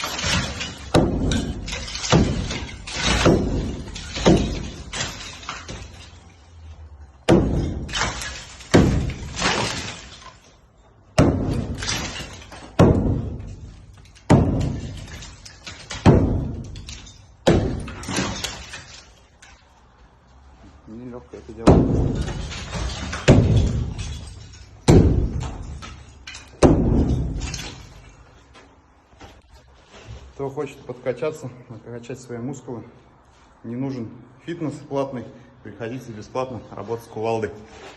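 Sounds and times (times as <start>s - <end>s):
sledgehammer striking brick wall: 0.0s - 19.6s, 21.5s - 28.2s.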